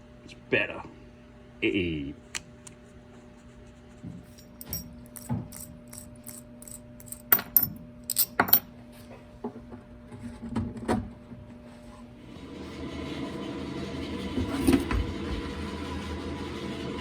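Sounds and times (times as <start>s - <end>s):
metal parts clinking and rattling: 4.3s - 8.6s.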